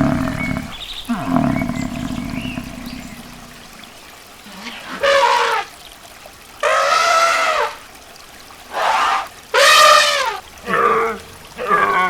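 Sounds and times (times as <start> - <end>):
animal calling: 0.0 - 3.6, 4.4 - 5.7, 6.6 - 7.8, 8.7 - 12.0.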